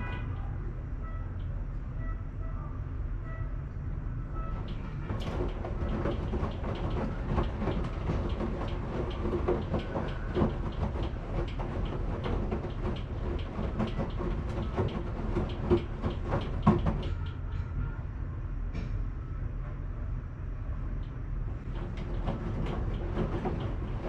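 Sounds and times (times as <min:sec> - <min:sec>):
washing machine running: 0:04.1 - 0:17.6, 0:20.8 - 0:24.0.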